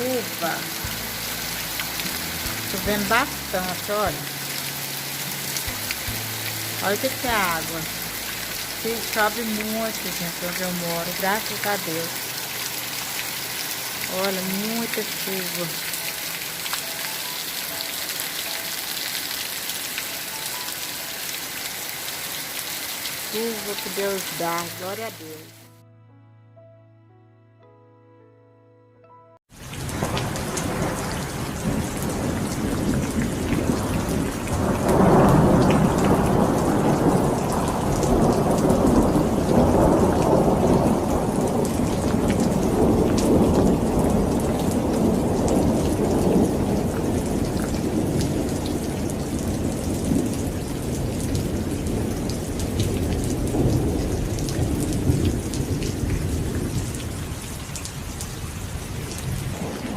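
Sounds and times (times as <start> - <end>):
heavy rain pouring: 0.0 - 25.6, 29.5 - 59.9
low rumble of thunder: 29.7 - 59.9.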